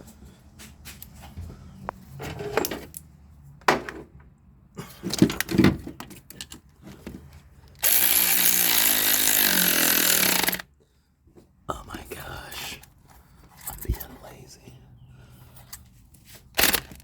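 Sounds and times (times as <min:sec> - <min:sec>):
power tool running: 0:07.8 - 0:10.6, 0:16.6 - 0:17.0.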